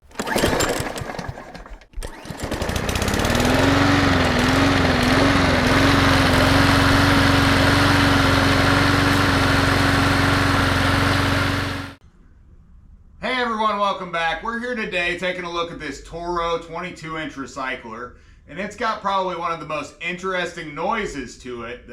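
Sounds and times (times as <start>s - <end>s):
push mower engine running: 0.0s - 12.0s.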